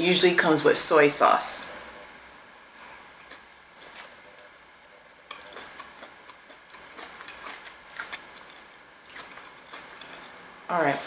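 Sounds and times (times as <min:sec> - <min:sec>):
person chewing food: 0:02.7 - 0:10.6.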